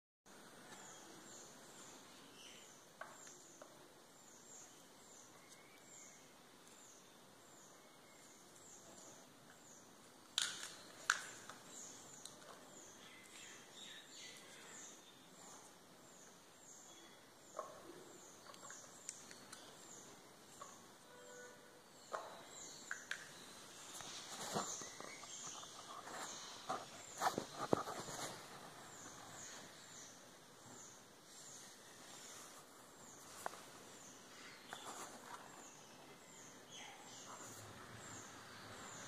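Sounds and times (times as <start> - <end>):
bird chirping faintly: 10.6 - 39.0.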